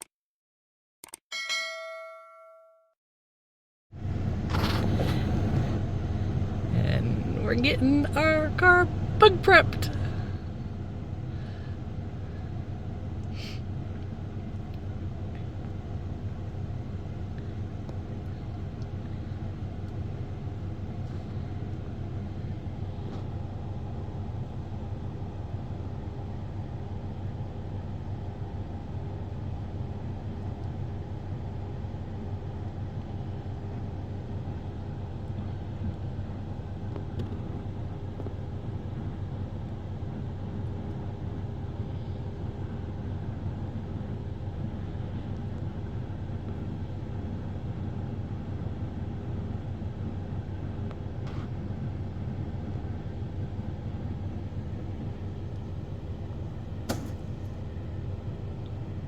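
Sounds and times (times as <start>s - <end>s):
sharp click: 1.0s - 1.2s, 56.9s - 57.3s
car cabin rumble: 4.0s - 13.0s, 50.1s - 59.0s
car engine running: 4.0s - 59.0s
constant low hum: 4.0s - 59.0s.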